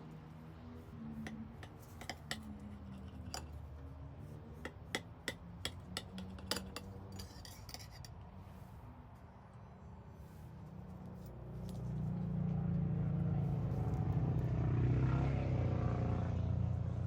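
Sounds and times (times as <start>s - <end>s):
utensils clinking on dishes: 5.8s - 8.1s.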